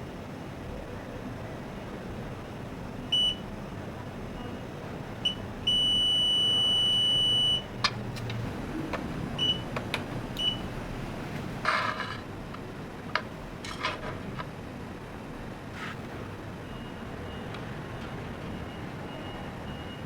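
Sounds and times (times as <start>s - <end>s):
high electronic beeps: 5.2s - 7.7s.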